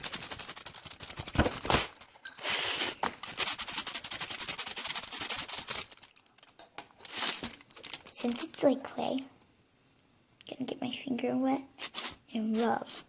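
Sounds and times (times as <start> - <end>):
aluminum foil crinkling: 0.0 - 8.7.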